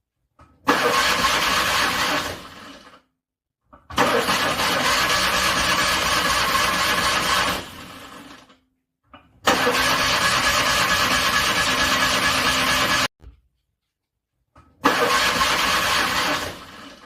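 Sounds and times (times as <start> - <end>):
car engine cranking: 0.7 - 2.6, 3.9 - 8.0, 9.4 - 13.1, 14.8 - 17.0.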